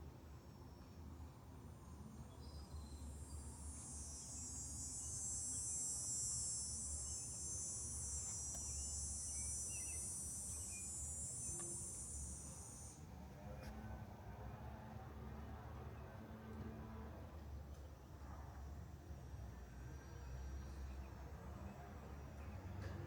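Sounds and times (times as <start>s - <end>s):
insect buzzing: 3.7s - 13.0s.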